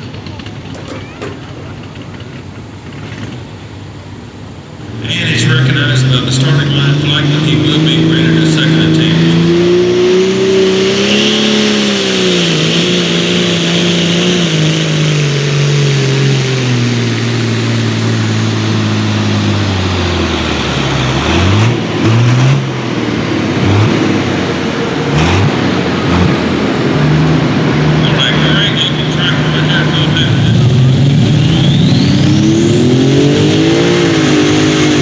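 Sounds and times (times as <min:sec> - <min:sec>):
tractor engine revving: 0:00.0 - 0:35.0
high whistle: 0:31.3 - 0:32.6.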